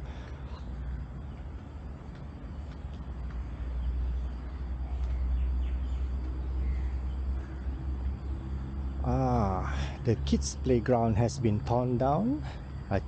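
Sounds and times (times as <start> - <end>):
faint bird chirps: 0.0 - 9.7
low steady rumble: 0.0 - 13.0.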